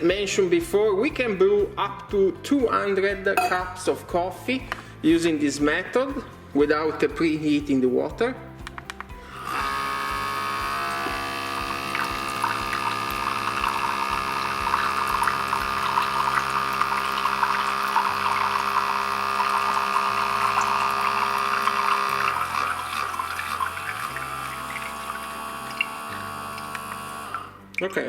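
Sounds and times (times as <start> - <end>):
coffee spurting into cup: 9.2 - 27.6
espresso machine pump humming: 9.2 - 27.6.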